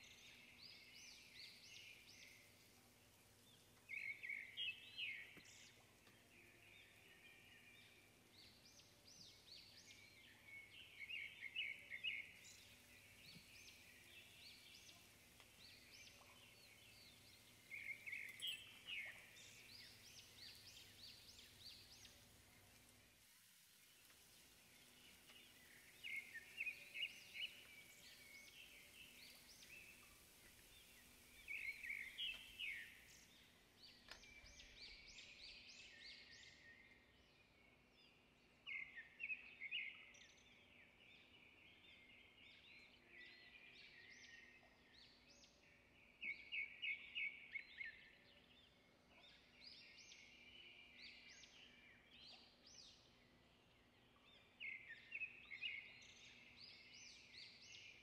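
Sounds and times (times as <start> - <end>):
bird chirping: 0.0 - 58.0.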